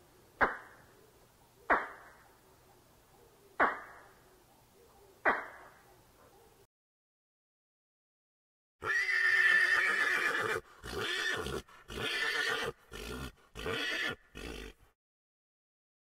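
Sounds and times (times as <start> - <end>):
horse whinnying: 8.8 - 14.8.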